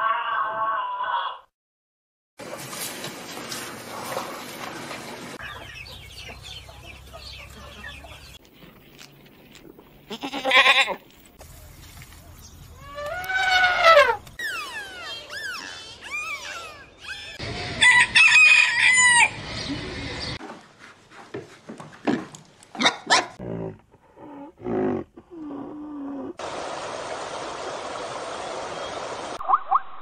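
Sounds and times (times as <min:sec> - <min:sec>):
chickens clucking: 0:03.6 - 0:08.9
rooster crowing: 0:17.7 - 0:19.4.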